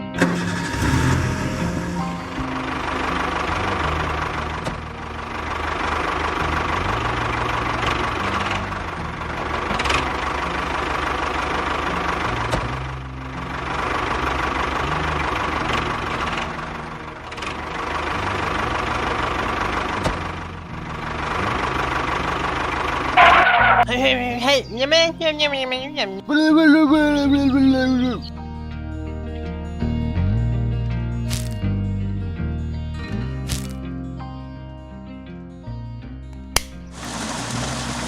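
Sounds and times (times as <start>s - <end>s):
motor running: 0.0s - 4.4s, 36.9s - 38.0s.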